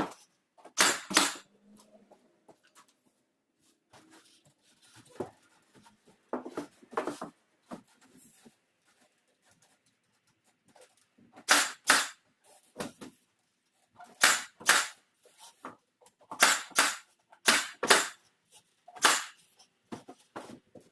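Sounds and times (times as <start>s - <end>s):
nail gun firing into wood: 0.8s - 1.4s, 11.4s - 12.2s, 14.2s - 15.0s, 16.3s - 18.2s, 19.0s - 19.4s.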